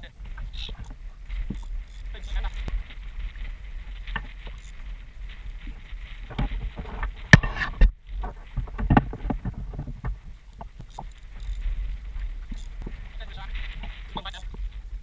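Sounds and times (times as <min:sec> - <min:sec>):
water knocking against plastic kayak: 0:05.6 - 0:11.0.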